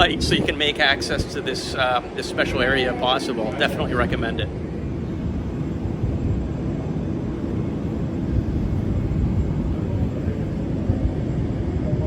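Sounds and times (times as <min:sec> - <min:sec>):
jet airliners rumbling: 0:00.0 - 0:12.0.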